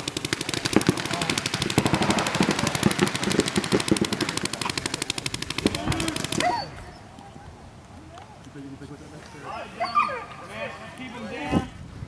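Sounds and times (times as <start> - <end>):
paintball markers firing: 0.0 - 6.6.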